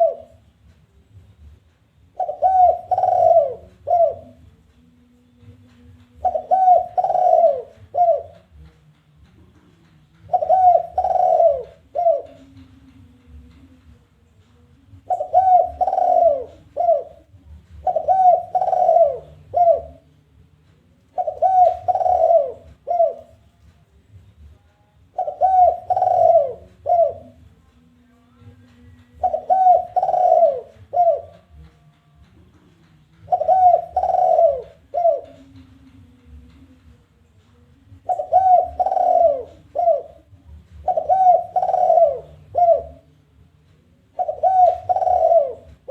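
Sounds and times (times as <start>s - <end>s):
dove cooing: 0.0s - 0.4s, 2.1s - 4.4s, 6.1s - 8.6s, 10.2s - 12.7s, 14.9s - 20.1s, 21.1s - 23.5s, 25.1s - 27.5s, 29.1s - 31.6s, 33.2s - 36.6s, 38.0s - 43.2s, 44.1s - 45.9s.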